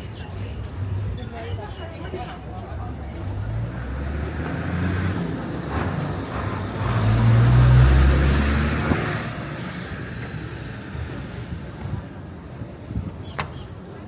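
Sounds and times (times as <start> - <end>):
vehicle passing by: 3.2 - 11.0.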